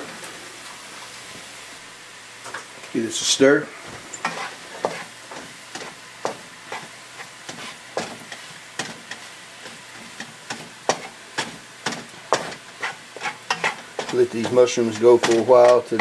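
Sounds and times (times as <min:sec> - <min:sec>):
mushrooms sizzling in butter: 0:00.8 - 0:16.0
utensil scraping and knocking pan: 0:04.1 - 0:06.9, 0:07.5 - 0:16.0.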